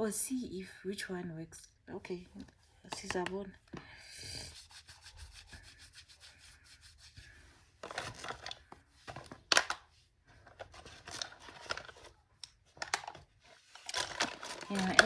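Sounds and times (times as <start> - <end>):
scraping and rustling: 4.3 - 12.2, 12.8 - 15.0.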